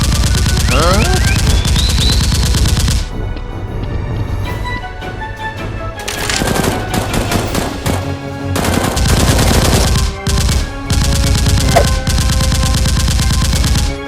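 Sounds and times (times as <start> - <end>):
automatic gunfire: 0.0 - 3.1, 8.6 - 14.0
action music: 0.0 - 14.0.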